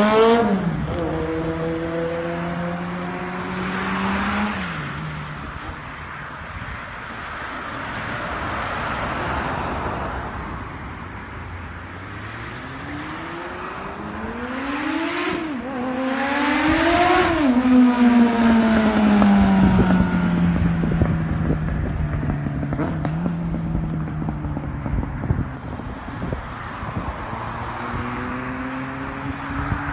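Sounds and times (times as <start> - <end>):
motorcycle engine accelerating: 0.0 - 4.8, 12.6 - 27.0.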